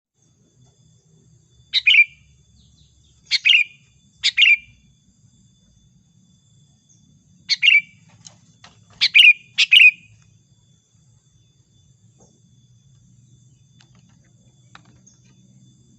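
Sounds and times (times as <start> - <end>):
bird giving bright calls: 7.5 - 8.0, 9.0 - 10.2.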